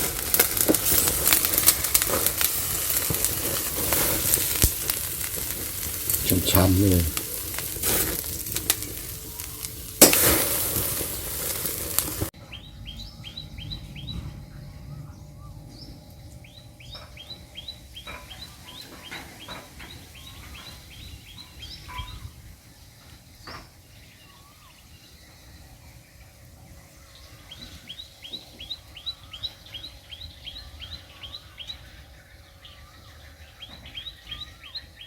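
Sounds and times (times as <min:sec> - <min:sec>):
food sizzling in hot oil: 0:00.0 - 0:12.3
birds chirping: 0:00.0 - 0:35.0.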